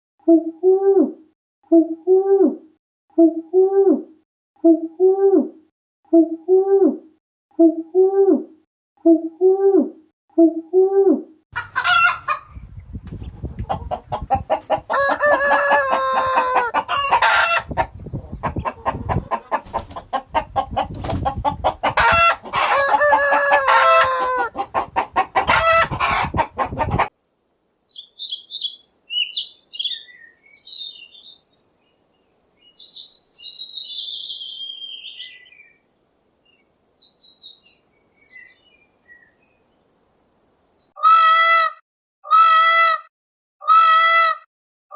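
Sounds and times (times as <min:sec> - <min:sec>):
hens clucking: 0:11.6 - 0:27.1
small bird chirping: 0:12.5 - 0:14.8, 0:27.9 - 0:35.8, 0:36.4 - 0:39.8
rooster crowing: 0:14.4 - 0:17.7, 0:21.9 - 0:24.6.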